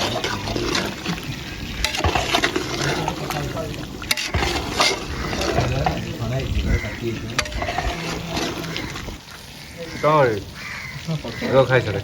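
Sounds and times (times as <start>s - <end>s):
liquid sloshing in a pot: 0.0s - 9.6s.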